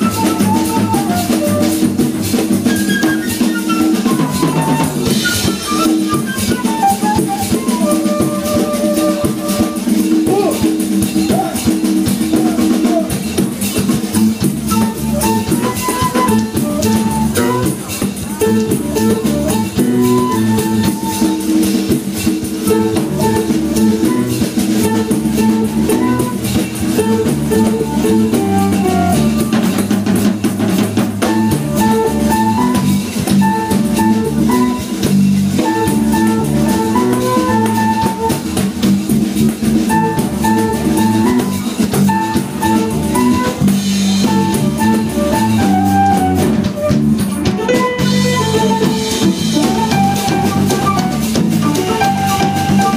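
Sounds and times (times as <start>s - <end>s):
drum kit and percussion: 0.0s - 52.9s
electric bass line: 6.4s - 52.9s.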